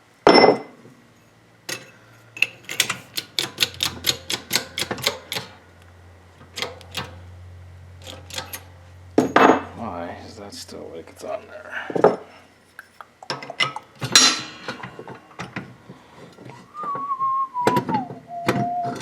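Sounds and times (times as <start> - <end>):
metal clank with ring: 14.2 - 15.0.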